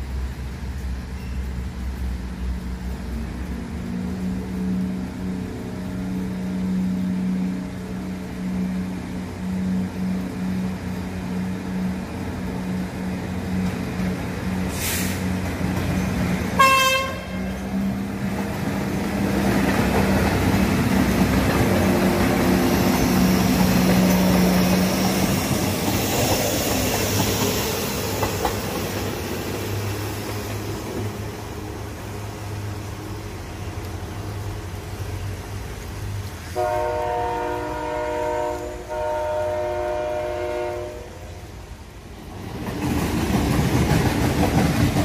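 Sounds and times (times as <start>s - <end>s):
diesel train engine humming: 0.0s - 45.0s
train horn toot: 16.6s - 17.6s, 36.6s - 41.6s.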